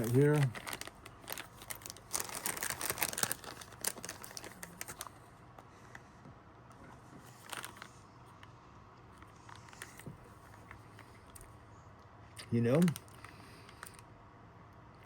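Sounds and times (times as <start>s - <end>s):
plastic pouch crinkling: 0.0s - 5.2s, 7.3s - 8.0s, 12.6s - 14.0s.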